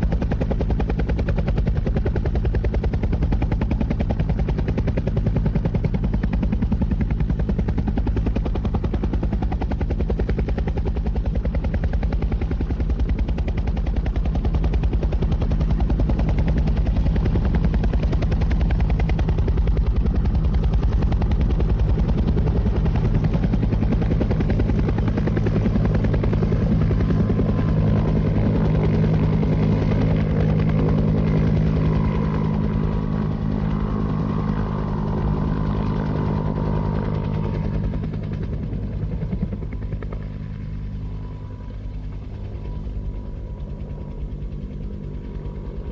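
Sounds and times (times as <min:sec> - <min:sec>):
helicopter rotor chopping: 0:00.0 - 0:45.9
low engine drone: 0:00.0 - 0:45.9
high whine: 0:30.9 - 0:45.9.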